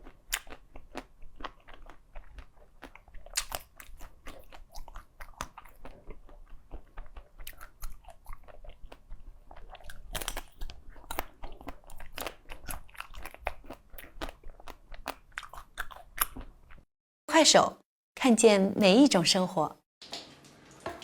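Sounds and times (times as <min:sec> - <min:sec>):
crunching and chewing ice: 0:00.0 - 0:16.9.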